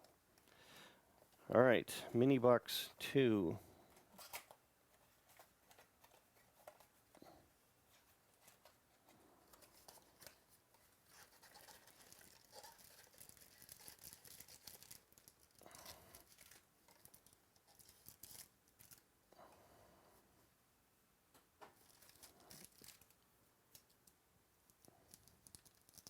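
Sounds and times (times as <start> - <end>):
cards and cardboard rustling: 3.8 - 7.3, 7.9 - 19.0, 21.7 - 23.2
foil wrappers crinkling and tearing: 9.6 - 19.1, 21.8 - 23.2.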